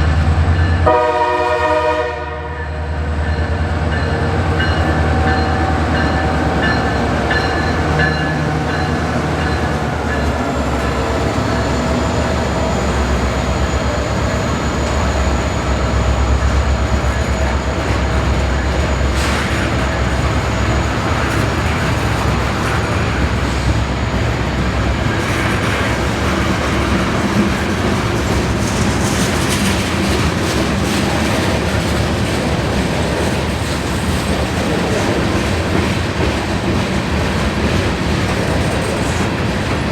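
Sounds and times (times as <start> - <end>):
train rumble and rail clatter: 0.0 - 39.9
train horn blast: 0.8 - 3.0.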